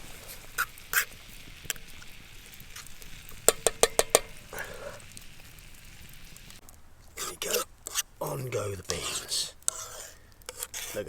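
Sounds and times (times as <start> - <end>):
metal utensil clinking on cookware: 3.4 - 4.9.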